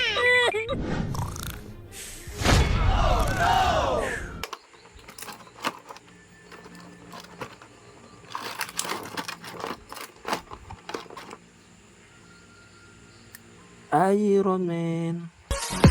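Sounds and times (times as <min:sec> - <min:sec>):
plastic packaging clicks and crinkles: 0:04.4 - 0:11.4.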